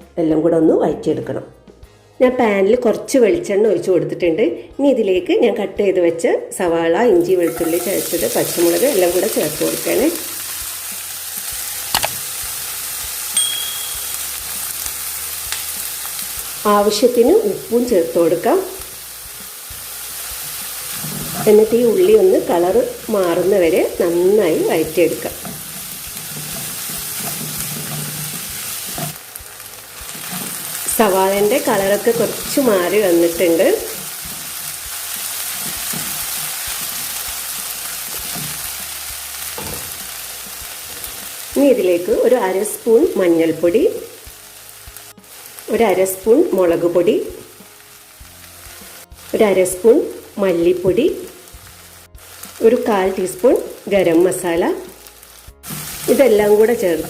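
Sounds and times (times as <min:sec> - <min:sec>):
vegetables sizzling in oil: 0:07.0 - 0:57.0
thin ringing tone: 0:13.4 - 0:14.2.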